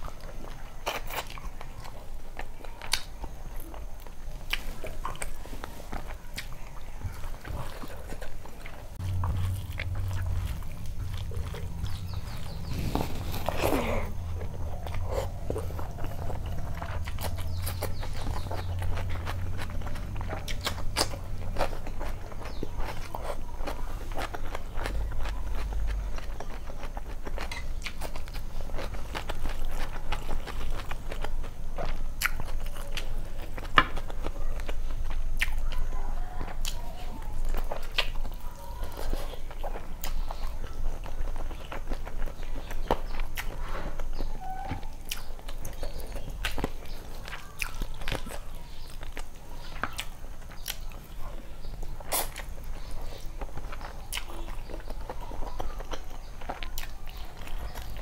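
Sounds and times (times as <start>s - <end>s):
chewing and wet mouth smacking: 0.0s - 58.0s
low hum: 8.7s - 23.2s.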